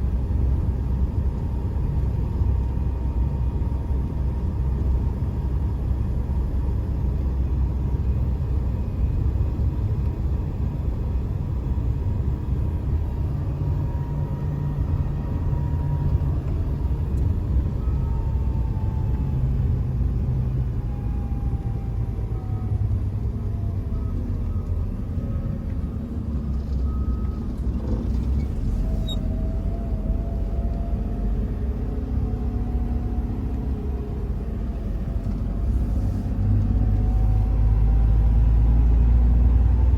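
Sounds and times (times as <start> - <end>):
truck engine and road rumble: 0.0 - 39.9
faint whining tones: 12.0 - 38.7.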